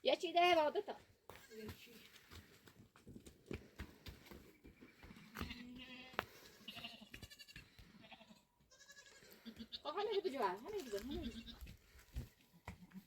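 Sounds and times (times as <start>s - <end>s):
goats bleating: 5.4s - 11.6s.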